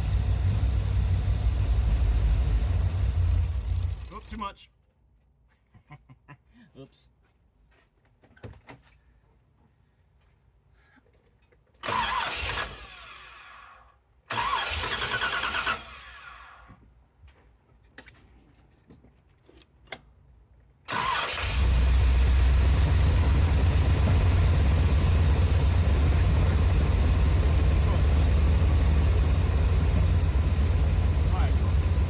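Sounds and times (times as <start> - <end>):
car engine cranking and idling: 0.0 - 4.4, 14.3 - 16.5, 20.9 - 32.0.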